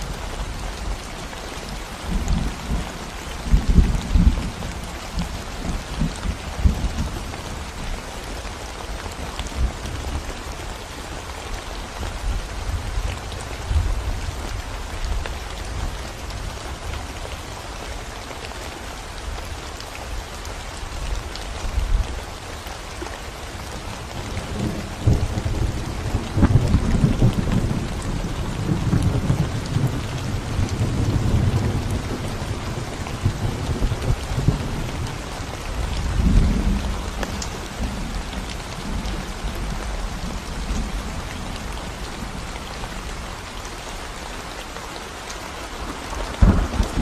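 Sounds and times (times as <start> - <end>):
rain falling on concrete road: 0.0 - 47.0.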